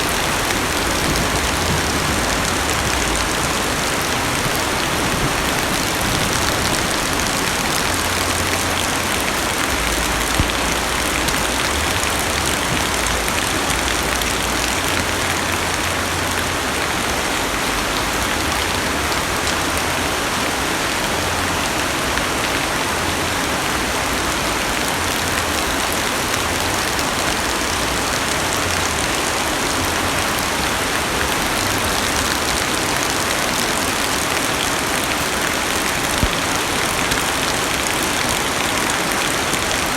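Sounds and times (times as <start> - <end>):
low rumble: 0.0 - 15.6
rain on car roof and windows: 0.0 - 39.9.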